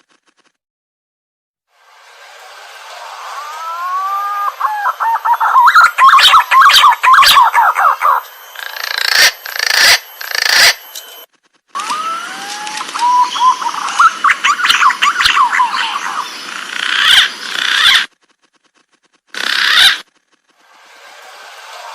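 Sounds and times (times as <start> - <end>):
pigeon whistling song: 3.3 - 10.8, 11.8 - 16.4.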